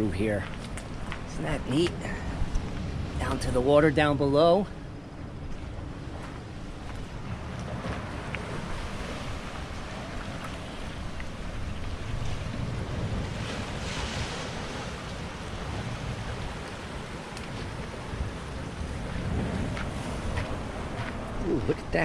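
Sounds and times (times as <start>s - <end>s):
wind rumble on microphone: 0.0s - 22.0s
surf washing against rocks: 6.1s - 22.0s.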